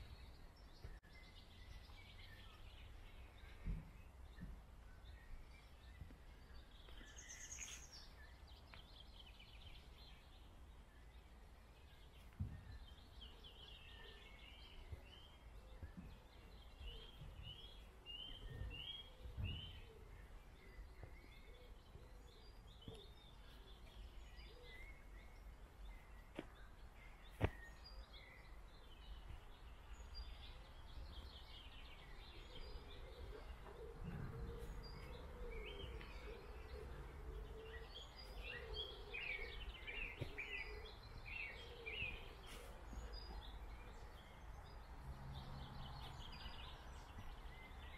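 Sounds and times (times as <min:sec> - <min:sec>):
faint birdsong: 0:00.0 - 0:47.9
soft low thuds: 0:15.8 - 0:20.2.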